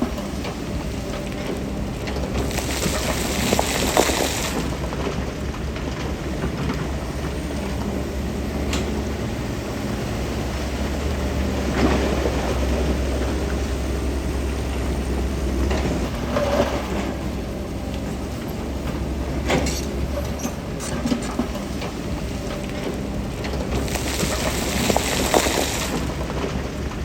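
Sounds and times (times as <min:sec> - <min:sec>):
diesel engine running: 0:00.0 - 0:27.0
clatter and scraping: 0:15.6 - 0:17.3, 0:18.9 - 0:27.0.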